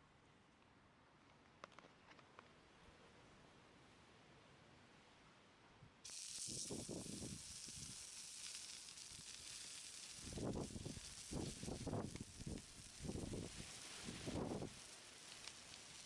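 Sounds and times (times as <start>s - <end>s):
meat sizzling on a griddle: 6.1s - 16.0s.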